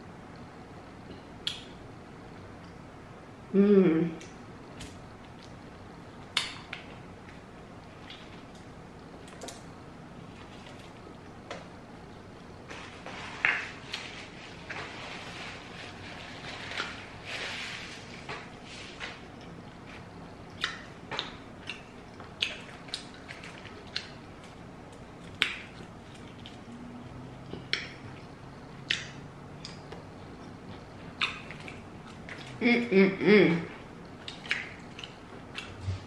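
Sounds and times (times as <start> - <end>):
wet chewing: 18.4 - 32.6, 33.8 - 35.8.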